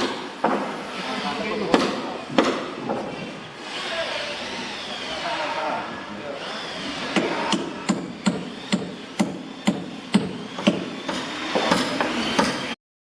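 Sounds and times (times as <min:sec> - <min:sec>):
hammer striking wood: 0:00.0 - 0:00.8, 0:01.7 - 0:03.1, 0:07.2 - 0:12.7.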